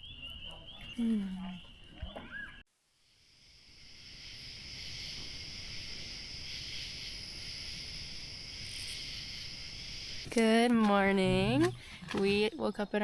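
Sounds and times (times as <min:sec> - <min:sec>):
insects chorus: 0:03.0 - 0:13.0.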